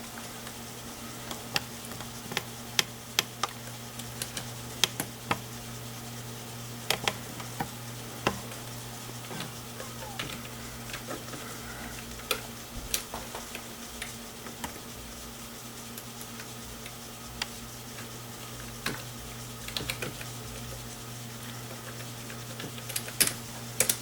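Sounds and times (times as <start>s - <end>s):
computer humming: 0.0s - 24.0s.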